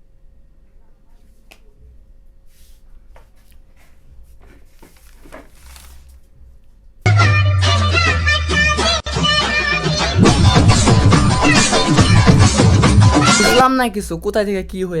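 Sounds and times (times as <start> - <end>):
faint steady hum: 0.0 - 7.1
loud music with heavy bass: 7.1 - 13.6.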